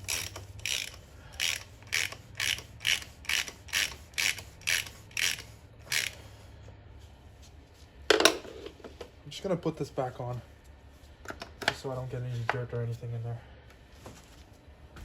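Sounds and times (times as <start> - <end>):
ratchet wrench clicking: 0.0 - 6.2.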